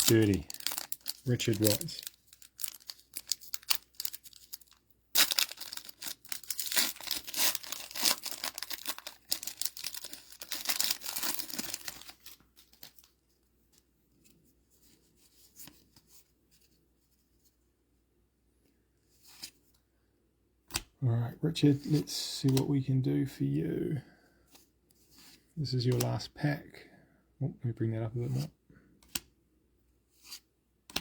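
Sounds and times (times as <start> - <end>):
wrapper being torn open: 0.0 - 13.1.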